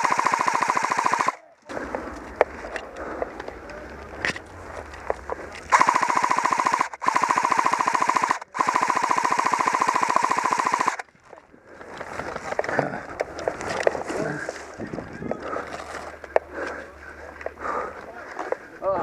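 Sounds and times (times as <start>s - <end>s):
airsoft gun firing full auto: 0.0s - 1.4s, 5.7s - 11.0s.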